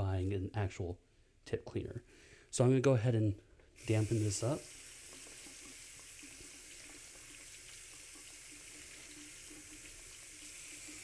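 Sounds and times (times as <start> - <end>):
tap water running onto paper towel: 3.8 - 11.0.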